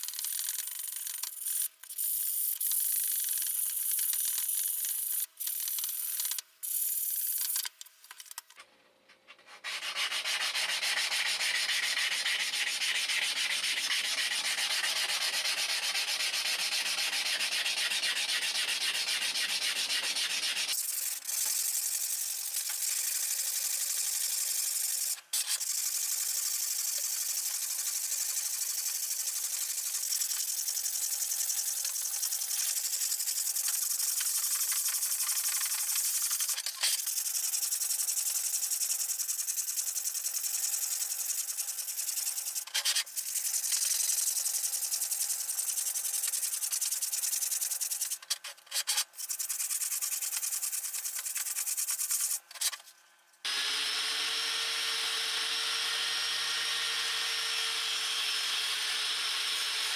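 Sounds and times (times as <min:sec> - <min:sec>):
hand sanding: 0:09.6 - 0:20.8, 0:49.2 - 0:52.4.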